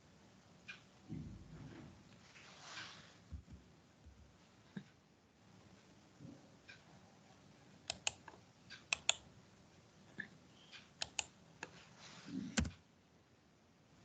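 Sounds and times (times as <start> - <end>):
keyboard key clicks: 8.9 - 9.2, 11.0 - 11.3.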